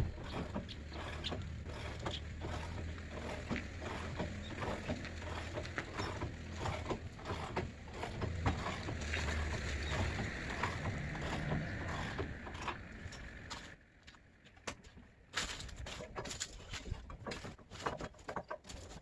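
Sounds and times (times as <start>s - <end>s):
lifting jacks humming: 0.0s - 13.7s.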